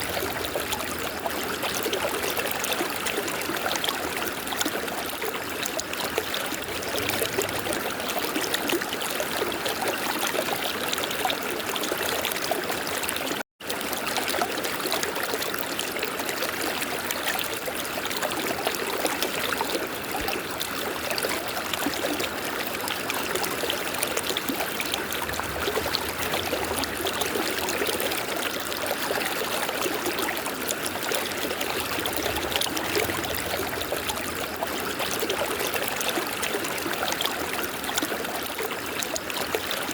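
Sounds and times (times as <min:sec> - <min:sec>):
river flowing: 0:06.0 - 0:09.5, 0:18.2 - 0:39.9.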